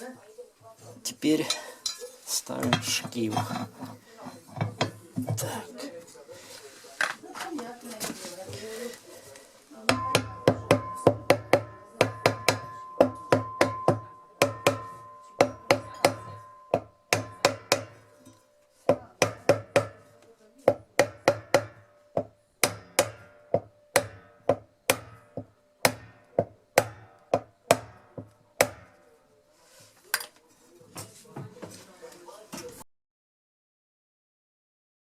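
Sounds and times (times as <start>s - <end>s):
hammer striking metal: 9.9s - 29.1s.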